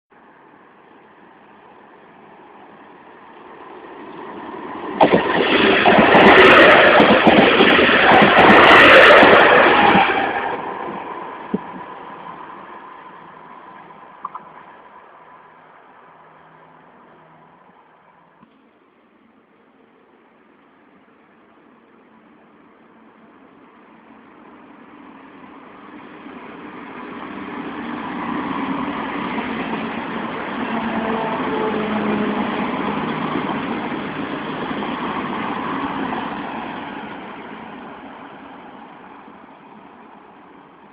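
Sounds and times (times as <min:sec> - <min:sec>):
train passing with rushing noise: 0:00.2 - 0:40.9
train wheels clattering on rails: 0:04.2 - 0:10.6.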